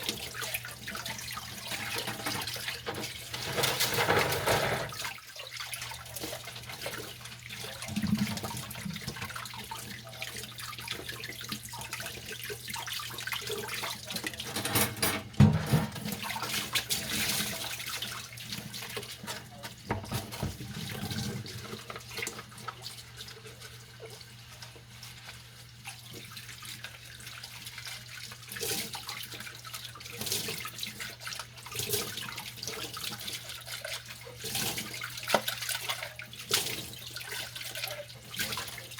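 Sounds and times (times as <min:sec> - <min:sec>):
tap water running: 0:00.0 - 0:38.9
dishes clattering: 0:01.9 - 0:05.0, 0:14.4 - 0:16.3.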